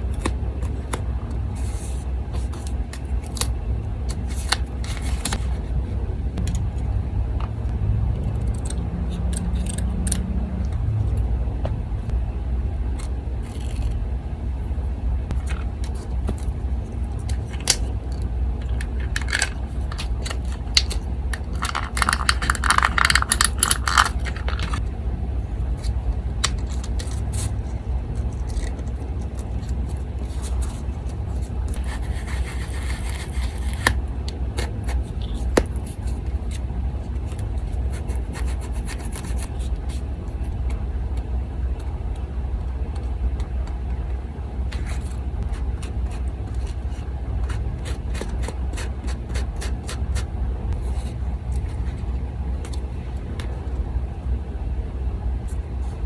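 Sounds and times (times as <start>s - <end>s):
paper rustling and scraping: 0.0s - 3.5s, 4.1s - 5.8s, 19.2s - 24.8s, 28.2s - 34.0s, 37.2s - 40.6s
electric fan humming: 0.0s - 56.0s.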